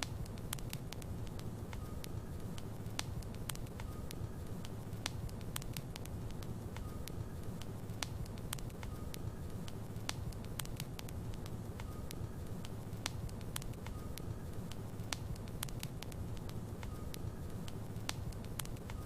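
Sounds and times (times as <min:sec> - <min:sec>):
fire crackling and popping: 0:00.0 - 0:19.0
fire rumbling: 0:00.0 - 0:19.0.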